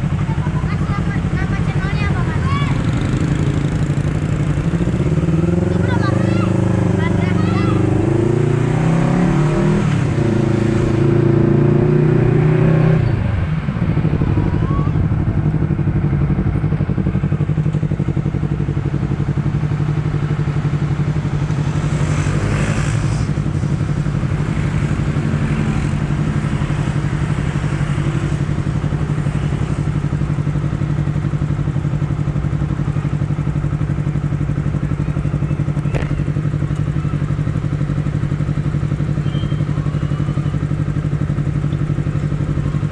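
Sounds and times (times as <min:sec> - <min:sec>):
motorcycle engine: 0:00.0 - 0:42.9
rush of noise: 0:05.5 - 0:18.6.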